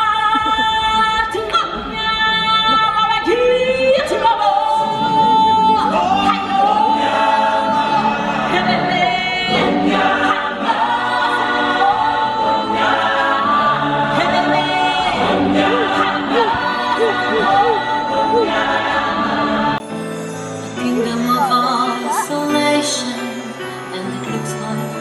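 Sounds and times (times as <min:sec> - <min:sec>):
stage show backing track: 0:00.0 - 0:25.0
choir singing sustained notes: 0:04.7 - 0:25.0.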